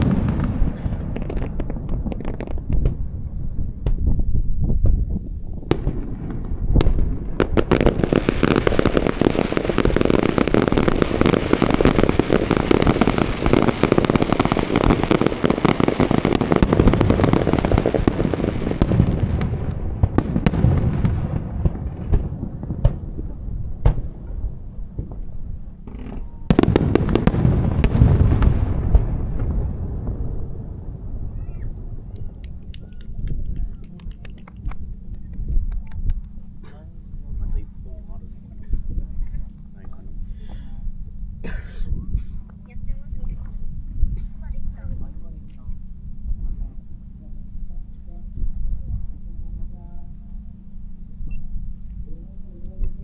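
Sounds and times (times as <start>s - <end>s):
fireworks crackling: 0.0s - 40.8s.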